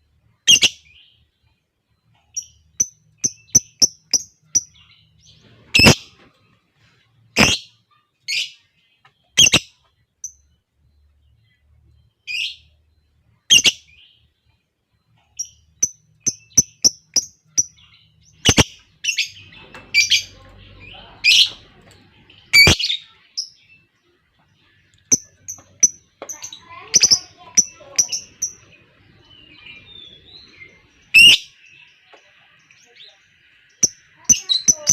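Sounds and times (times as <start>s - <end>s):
lovebirds calling shrilly: 0.4s - 1.2s, 2.2s - 6.3s, 7.3s - 8.7s, 9.3s - 10.5s, 13.5s - 14.3s, 15.3s - 23.9s, 24.6s - 34.9s.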